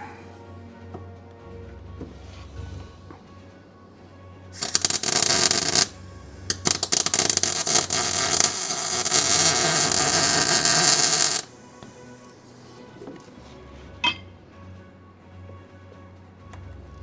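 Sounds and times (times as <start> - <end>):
arc welder crackling: 4.6 - 11.5.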